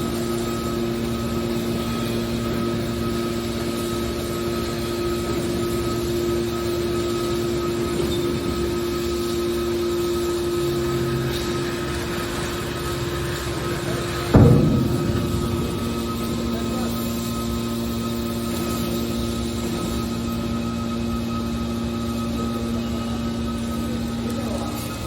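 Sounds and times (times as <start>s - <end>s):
can baler mechanical hum: 10.3s - 18.6s.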